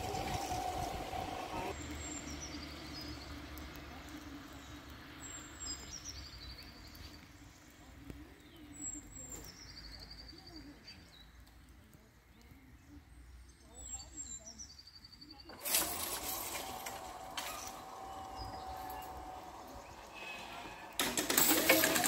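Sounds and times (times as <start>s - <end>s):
songbird singing with trill: 12.3s - 15.5s.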